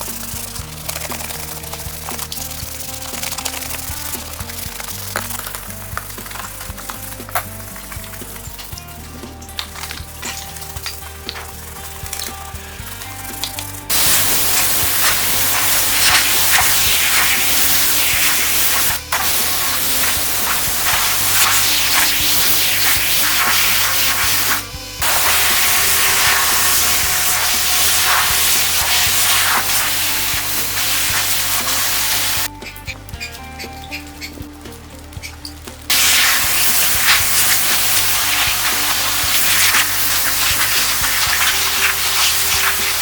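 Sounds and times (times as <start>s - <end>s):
background music: 0.0s - 43.0s
loud spraying hiss: 9.6s - 32.5s, 35.9s - 43.0s.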